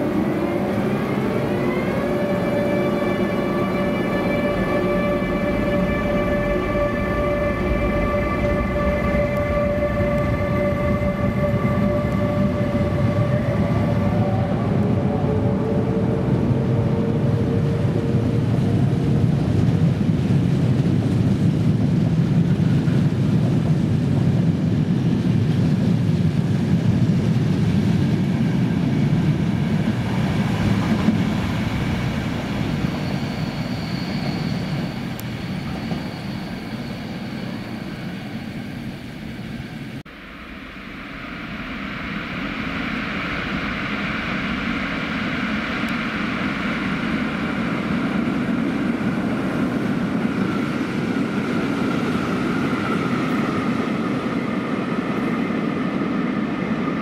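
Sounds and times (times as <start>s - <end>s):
train approaching through tunnel: 0.0s - 57.0s
train rumbling past: 0.0s - 57.0s
thin high squeal: 32.6s - 38.5s.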